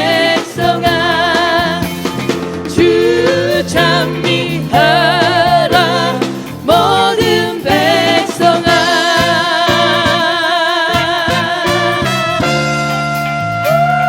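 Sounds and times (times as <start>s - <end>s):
choir singing: 0.0s - 1.9s, 2.7s - 11.9s
instrumental accompaniment: 0.0s - 14.0s.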